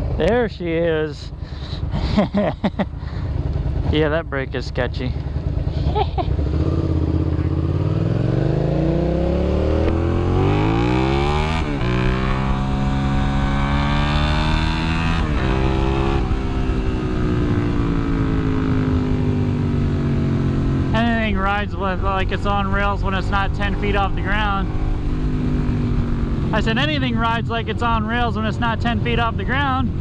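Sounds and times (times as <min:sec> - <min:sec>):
sport bike engine accelerating: 0:04.9 - 0:30.0.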